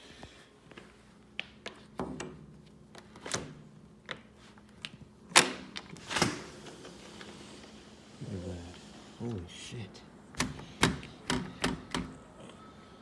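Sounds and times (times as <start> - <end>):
door unlatching and opening: 5.3 - 8.2, 10.3 - 12.2.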